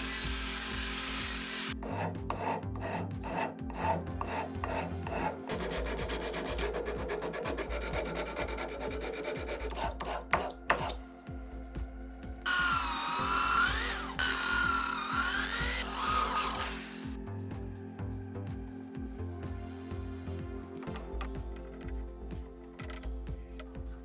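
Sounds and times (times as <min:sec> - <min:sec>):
hand tool scraping metal: 0:00.0 - 0:11.0, 0:12.5 - 0:17.1.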